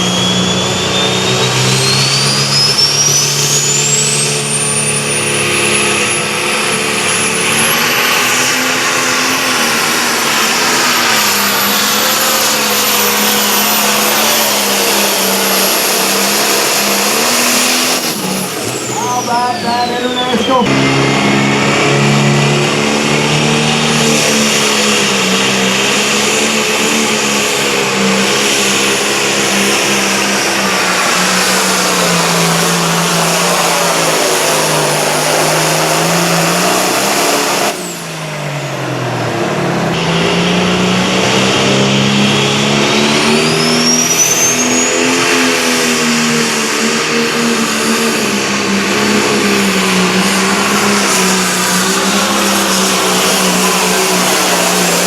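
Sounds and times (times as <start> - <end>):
short rising whistle: 0.0 - 21.2, 40.0 - 46.0
tractor engine at high revs: 0.0 - 55.0.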